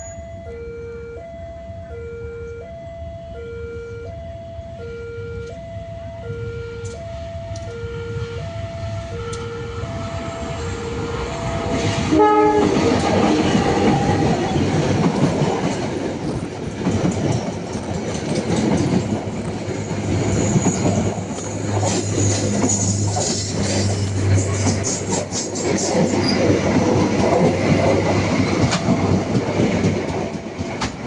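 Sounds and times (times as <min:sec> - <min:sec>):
two-tone crossing alarm: 0:00.0 - 0:14.7
train passing rumble: 0:00.0 - 0:31.0
locomotive horn blast: 0:07.6 - 0:14.7, 0:21.7 - 0:25.3.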